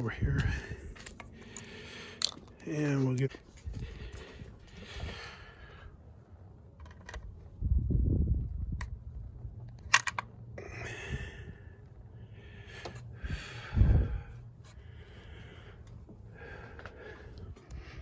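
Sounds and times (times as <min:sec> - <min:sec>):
person breathing: 0:00.4 - 0:02.6, 0:03.6 - 0:06.2, 0:10.6 - 0:18.0.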